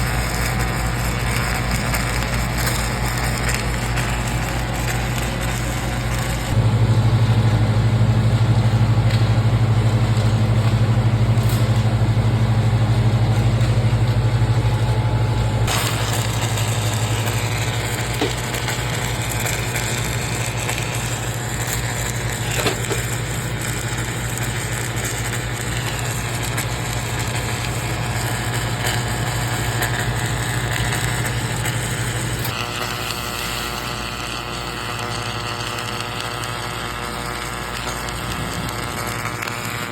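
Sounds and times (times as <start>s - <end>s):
rough crackling: 0.0s - 6.6s, 15.6s - 39.9s
welding machine humming: 0.0s - 39.9s.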